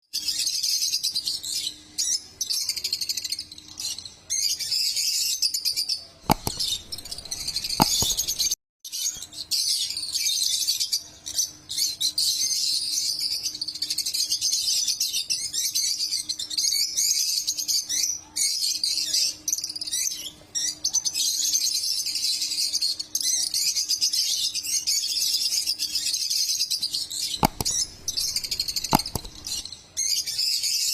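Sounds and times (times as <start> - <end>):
knocks: 6.3 - 8.5, 27.4 - 29.6
lovebirds chirping: 6.3 - 8.6, 27.4 - 29.6.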